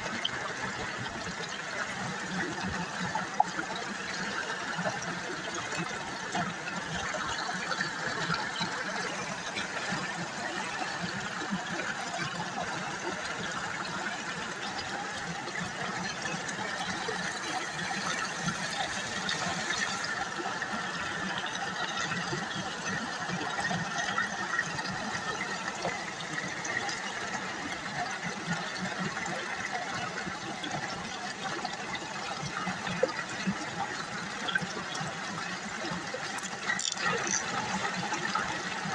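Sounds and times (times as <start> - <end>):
river water babbling: 0.0 - 38.9.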